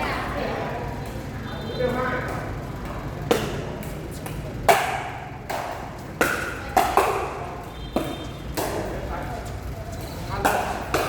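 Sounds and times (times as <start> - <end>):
paddles striking plastic ball: 4.6 - 7.4, 8.0 - 9.0, 10.4 - 11.0.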